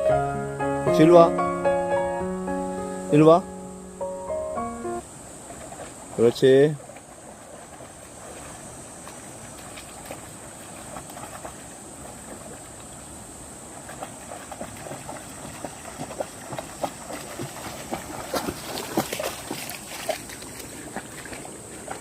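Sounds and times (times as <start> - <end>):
stream running over stones: 5.0 - 22.0
small water splashes: 5.4 - 22.0.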